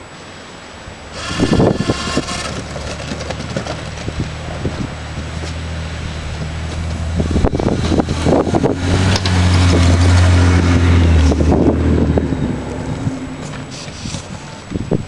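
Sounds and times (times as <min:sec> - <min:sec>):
car engine under load: 0:00.0 - 0:15.0
knocks and scrapes: 0:01.2 - 0:05.6, 0:13.4 - 0:14.5.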